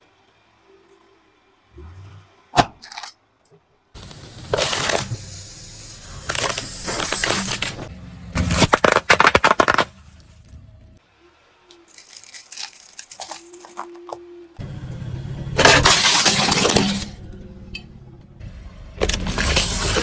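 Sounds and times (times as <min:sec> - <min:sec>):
objects crunching under car wheels: 0:06.2 - 0:11.0, 0:11.8 - 0:14.2, 0:15.6 - 0:17.3.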